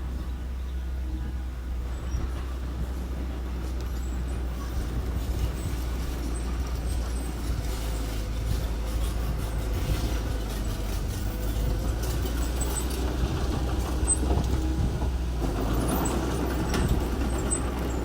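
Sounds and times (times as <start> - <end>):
diesel engine rumbling: 0.0 - 18.0
machinery clanking: 0.0 - 18.0.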